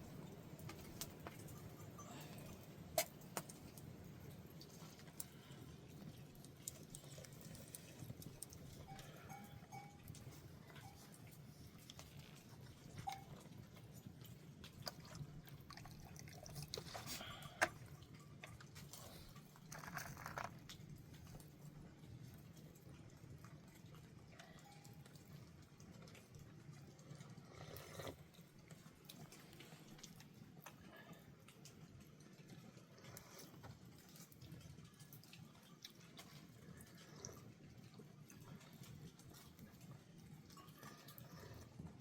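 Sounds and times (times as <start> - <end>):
goat bells clinking: 8.8 - 11.1.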